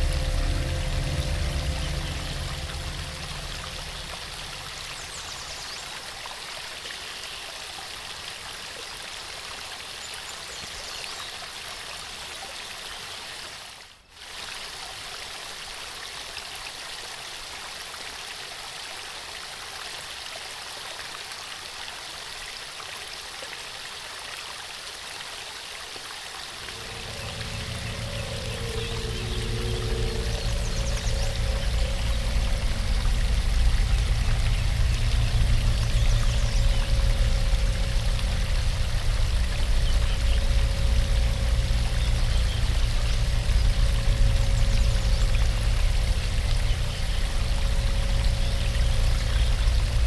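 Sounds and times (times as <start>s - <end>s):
soft low music: 0.0s - 6.0s, 26.6s - 50.0s
waterfall water rushing: 0.0s - 6.1s, 26.6s - 50.0s.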